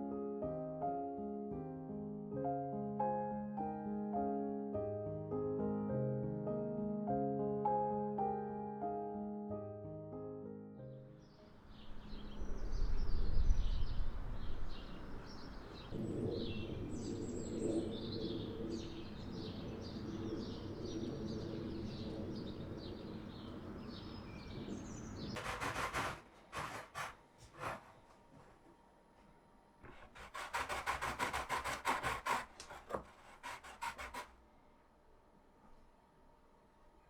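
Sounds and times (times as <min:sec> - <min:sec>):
small birds chirping: 0:11.2 - 0:25.6.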